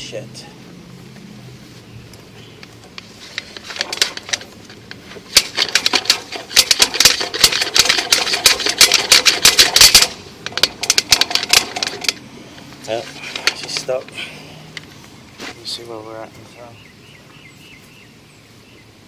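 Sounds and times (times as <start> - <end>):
push cable rattling and clicking: 2.6 - 12.2, 12.9 - 14.2.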